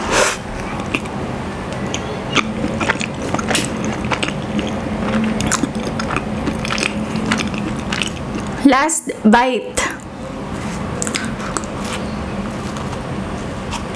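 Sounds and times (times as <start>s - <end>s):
chewing soft bread: 0.6s - 8.6s, 10.6s - 13.9s
wet mouth clicks and smacks: 0.8s - 1.1s, 1.7s - 8.6s, 11.0s - 11.7s.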